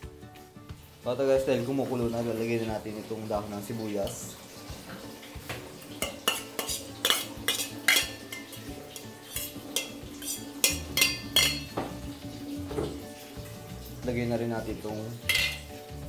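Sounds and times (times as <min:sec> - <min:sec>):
metal spoon clinking against bowl: 0:06.0 - 0:11.8, 0:15.2 - 0:15.7.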